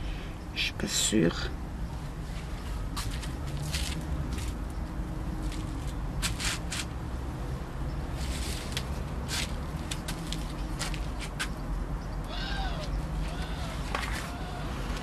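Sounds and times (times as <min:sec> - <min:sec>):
leaves and stems rustling: 0:08.1 - 0:11.4.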